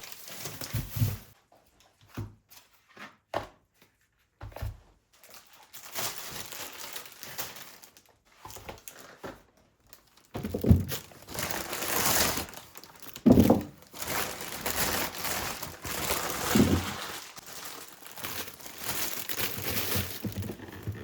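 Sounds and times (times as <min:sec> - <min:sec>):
packaging crinkling: 0:05.2 - 0:09.2, 0:09.8 - 0:21.0.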